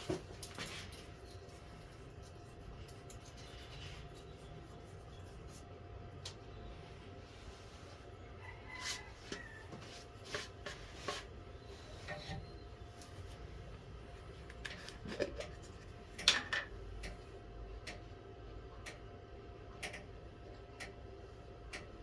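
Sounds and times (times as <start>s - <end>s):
steady low hum: 0.0s - 22.0s
rubbing and scraping on wood: 8.7s - 12.5s.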